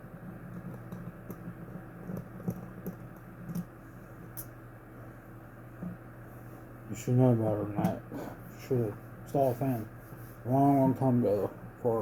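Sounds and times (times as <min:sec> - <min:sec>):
steady low hum: 0:00.0 - 0:12.0
light clicks and taps: 0:00.4 - 0:03.7.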